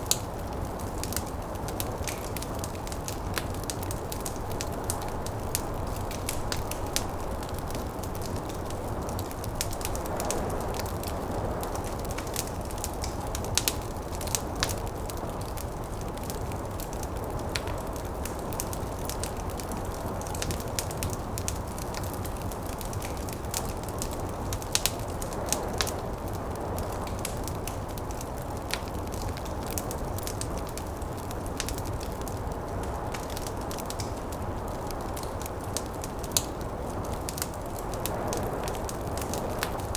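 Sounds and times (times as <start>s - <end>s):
wood fire crackling and popping: 0.0s - 39.9s
snowstorm wind: 0.4s - 33.7s, 34.3s - 39.9s.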